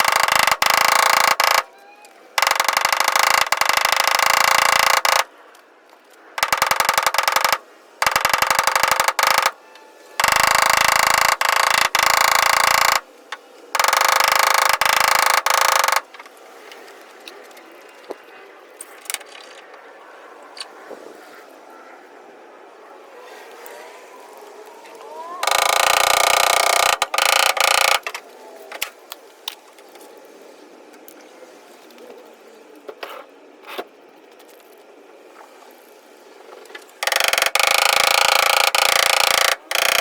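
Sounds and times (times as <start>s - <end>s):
machine buzzing in bursts: 0.0s - 1.7s, 2.4s - 5.3s, 6.4s - 9.6s, 10.2s - 13.1s, 13.8s - 16.1s, 25.3s - 28.1s, 37.0s - 40.0s.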